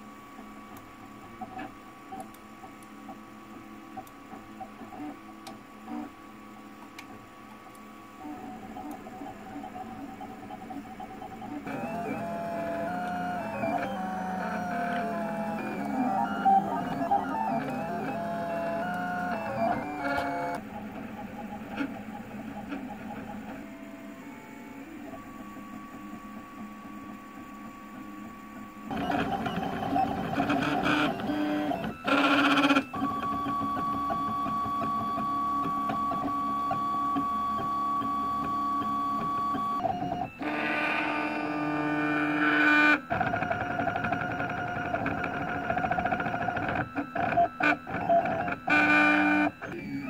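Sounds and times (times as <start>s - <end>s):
stepper motors whining: 8.2s - 20.6s.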